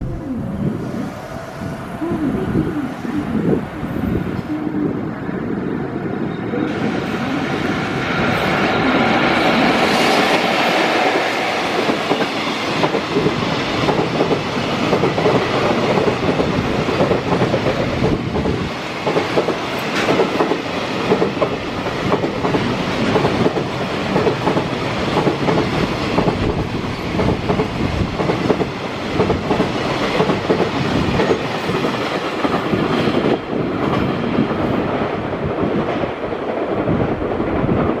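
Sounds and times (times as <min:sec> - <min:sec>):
train whine: 0:00.0 - 0:38.0
freight train wheels clattering: 0:09.6 - 0:34.6.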